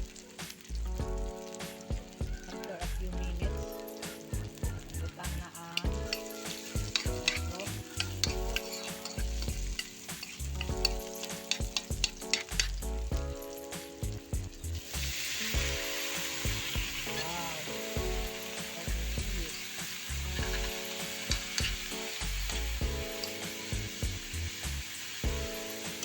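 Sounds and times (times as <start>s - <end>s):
background music: 0.0s - 26.0s
food sizzling in oil: 0.0s - 26.0s
utensil scraping a pan: 6.1s - 12.8s.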